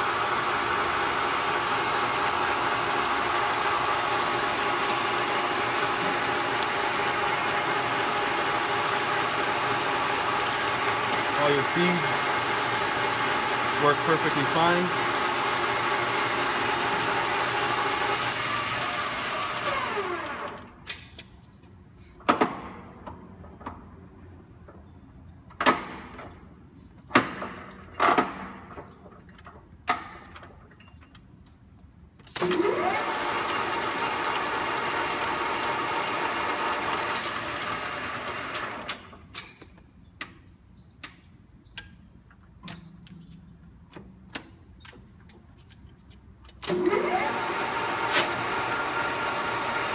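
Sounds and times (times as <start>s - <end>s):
lathe running: 0.0s - 20.4s, 32.4s - 38.8s, 46.7s - 49.9s.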